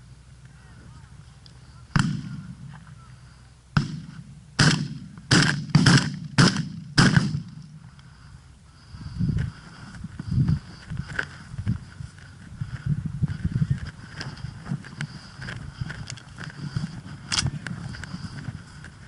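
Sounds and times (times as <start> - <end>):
sharp bangs: 1.9 - 2.7, 3.8 - 7.8.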